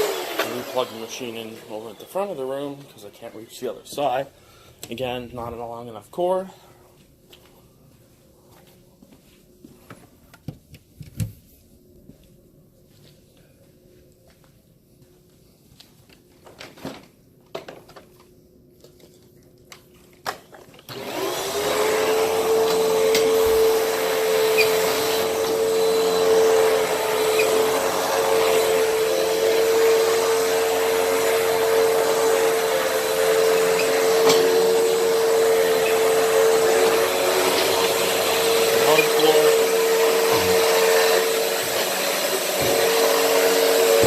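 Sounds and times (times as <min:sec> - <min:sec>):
vacuum cleaner motor whining: 0:00.0 - 0:04.3, 0:20.5 - 0:44.0.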